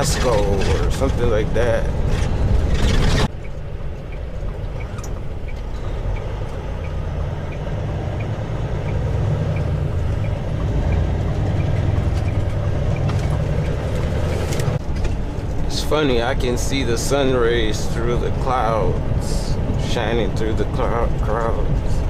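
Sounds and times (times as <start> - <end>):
truck diesel engine running: 0.0 - 22.0
light ticking: 3.3 - 14.8.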